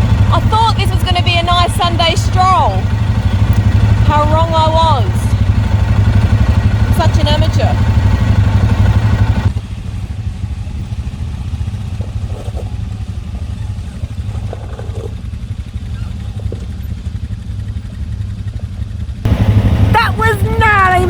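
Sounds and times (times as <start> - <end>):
quad bike engine droning: 0.0 - 21.0.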